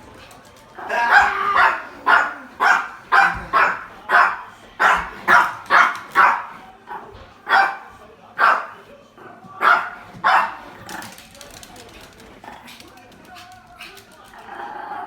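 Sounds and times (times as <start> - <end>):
dog barking: 0.8 - 8.9, 9.6 - 11.1.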